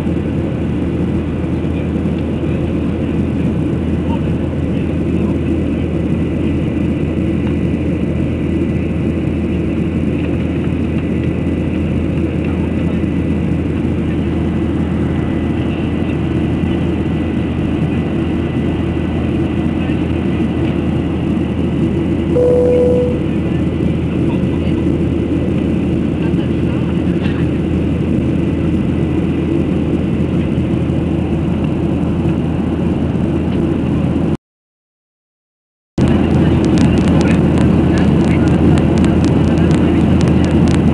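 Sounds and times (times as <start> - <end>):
airplane engines droning: 0.0 - 34.4, 36.0 - 40.9.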